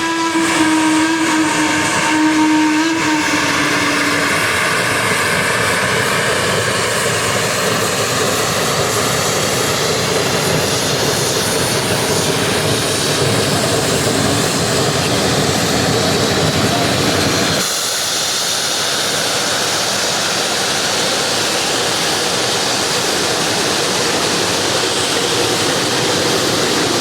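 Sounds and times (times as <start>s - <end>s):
steam locomotive whistle: 0.0s - 6.3s
locomotive steam exhaust rushing: 0.0s - 27.0s.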